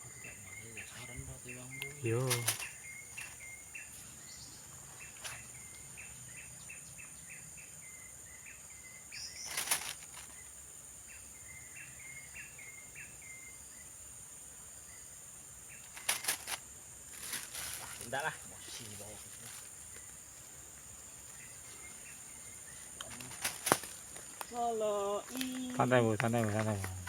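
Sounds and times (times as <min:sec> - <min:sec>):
short repeated chirping calls: 0:08.8 - 0:10.5.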